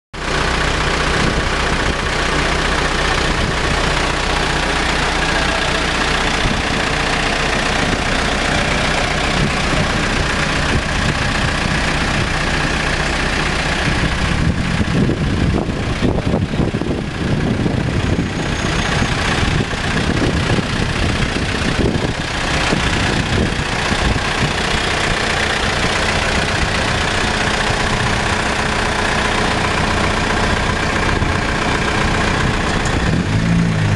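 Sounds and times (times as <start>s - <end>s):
diesel engine running: 0.2s - 33.9s.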